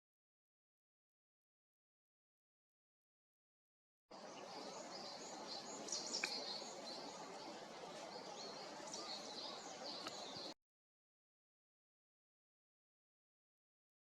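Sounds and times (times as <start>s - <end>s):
outdoor ambience hiss: 4.1s - 10.6s
small birds chirping: 4.1s - 10.6s
sharp tick: 6.2s - 6.4s.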